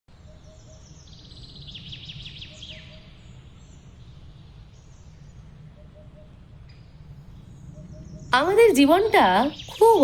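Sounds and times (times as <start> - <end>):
low outdoor rumble: 3.1 - 10.0
small birds chirping: 7.3 - 10.0.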